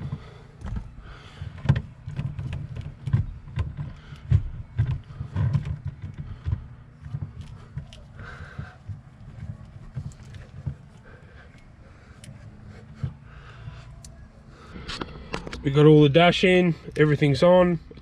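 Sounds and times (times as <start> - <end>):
car interior trim knocks and clicks: 0.0 - 13.3.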